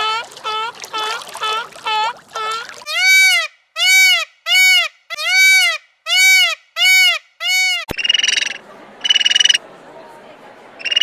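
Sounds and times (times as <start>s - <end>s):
rattling croak-like call: 7.9s - 9.6s, 10.8s - 11.0s.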